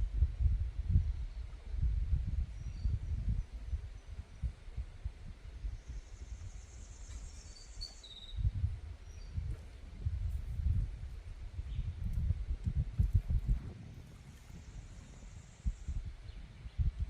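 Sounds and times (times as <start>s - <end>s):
wind buffeting microphone: 0.0s - 17.0s
bird chirps: 5.8s - 9.4s.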